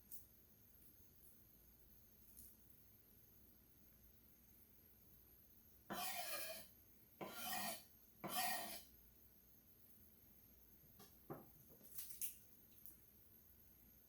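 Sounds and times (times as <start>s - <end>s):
rasping scrapes: 5.9s - 8.9s.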